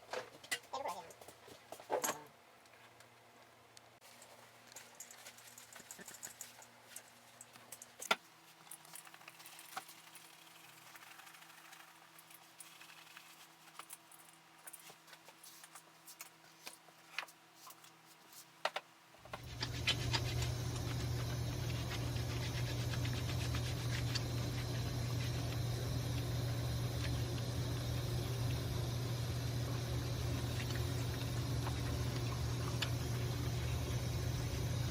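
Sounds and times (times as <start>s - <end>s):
workshop machine humming: 19.2s - 34.9s.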